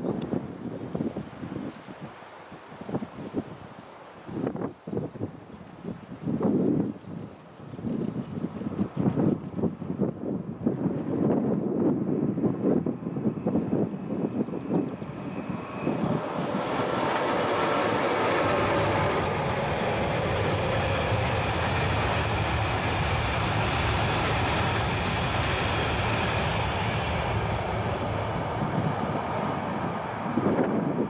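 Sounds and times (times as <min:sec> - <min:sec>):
wind buffeting microphone: 0:00.0 - 0:02.2, 0:02.8 - 0:31.0
freight train wheels rumbling: 0:07.1 - 0:31.0.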